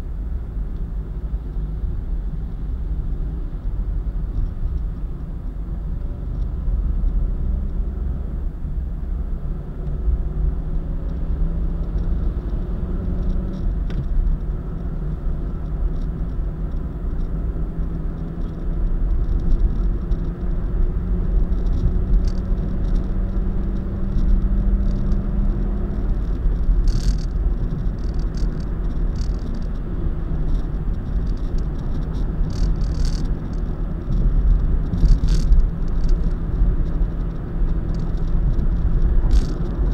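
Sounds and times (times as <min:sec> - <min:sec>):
car driving at highway speed: 0:00.0 - 0:39.9
short ticks or rattles: 0:21.5 - 0:29.8, 0:30.4 - 0:39.9.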